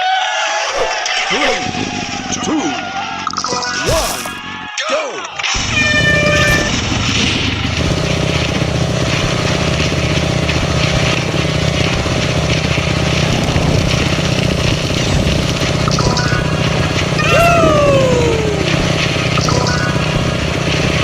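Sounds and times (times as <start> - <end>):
motorcycle engine running: 5.6 - 21.0.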